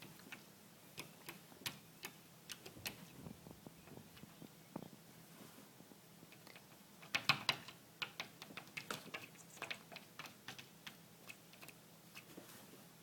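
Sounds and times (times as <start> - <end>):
cat claws tapping on window glass: 6.3 - 11.8.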